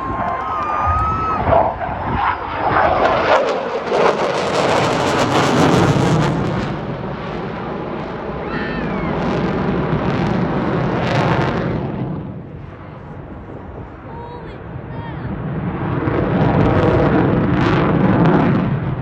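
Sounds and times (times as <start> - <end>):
jet fighter roaring past: 0.0 - 19.0.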